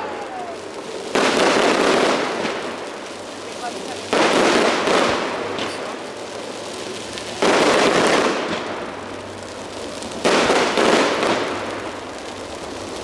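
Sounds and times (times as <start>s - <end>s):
firework shells bursting: 0.0s - 6.1s
fireworks crackling: 0.0s - 13.0s.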